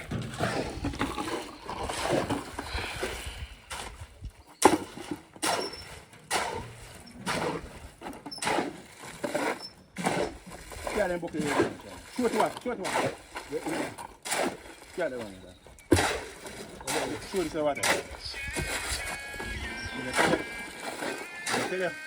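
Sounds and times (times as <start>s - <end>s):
hand tools knocking and scraping: 0.0s - 2.8s, 11.3s - 22.0s.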